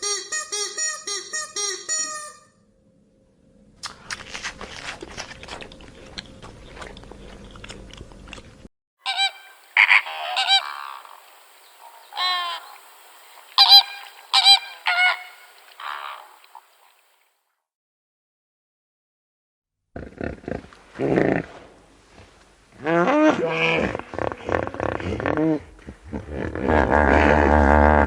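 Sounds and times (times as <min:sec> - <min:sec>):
low hum: 0:02.5 - 0:08.7
waterfowl calling: 0:09.0 - 0:17.1.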